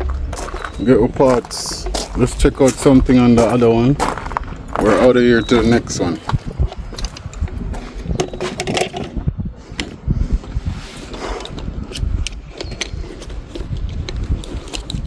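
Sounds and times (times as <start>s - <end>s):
walking footsteps: 0.0s - 8.5s
metal parts and tools rattling: 1.4s - 9.2s.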